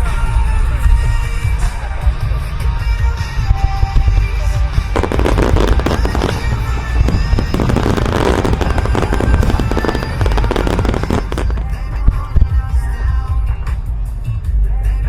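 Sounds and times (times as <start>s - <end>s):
fireworks bursts and crackling: 3.8s - 12.9s
rock music: 4.3s - 13.6s.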